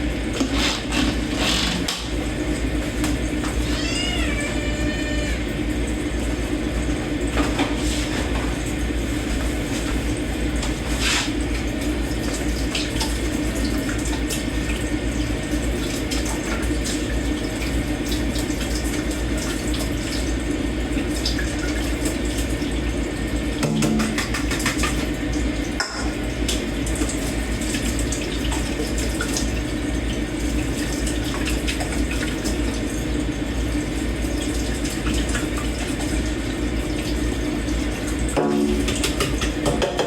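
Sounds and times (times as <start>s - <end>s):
tap running into sink: 0.3s - 2.2s, 2.9s - 4.4s, 23.6s - 25.2s, 25.8s - 27.2s, 38.3s - 40.0s.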